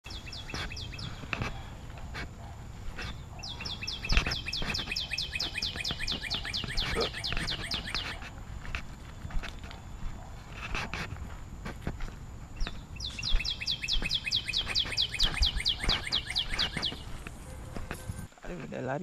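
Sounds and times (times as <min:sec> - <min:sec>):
footsteps on gravel: 0:00.1 - 0:18.8
bird singing descending notes: 0:03.4 - 0:08.2, 0:12.7 - 0:17.2.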